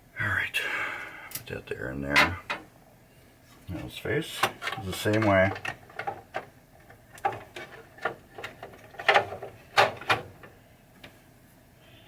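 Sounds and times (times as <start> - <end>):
parts clicking and knocking: 2.1 - 2.7, 4.3 - 11.2.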